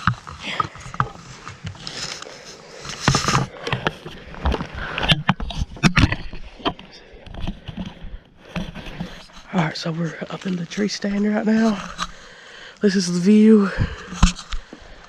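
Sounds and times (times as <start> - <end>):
scraping and rustling: 0.0 - 12.2.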